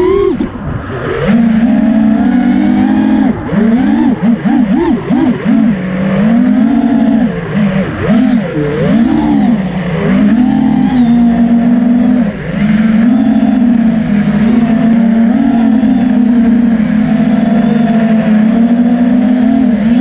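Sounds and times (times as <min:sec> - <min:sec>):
drone propellers buzzing: 0:00.0 - 0:20.0.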